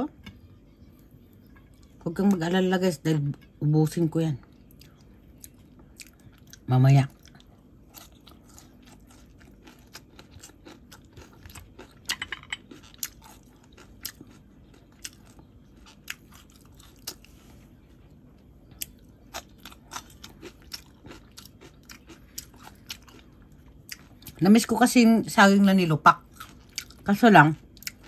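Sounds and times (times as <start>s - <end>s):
person chewing with crunches: 4.5s - 17.8s, 18.4s - 24.7s, 26.1s - 28.0s.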